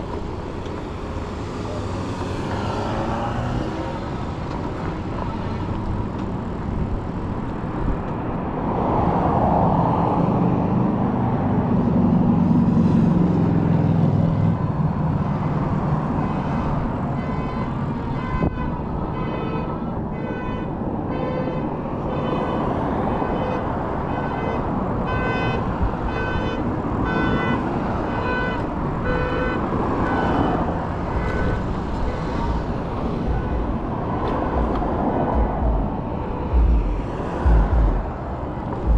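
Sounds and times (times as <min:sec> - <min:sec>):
road traffic: 0:00.0 - 0:38.9
wind noise: 0:20.9 - 0:38.9
vehicle passing: 0:29.8 - 0:38.9.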